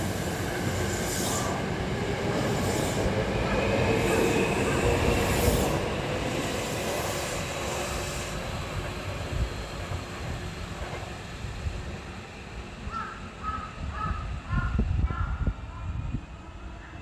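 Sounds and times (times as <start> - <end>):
electric train rumbling: 0.0 - 17.0
crow cawing: 12.9 - 15.4.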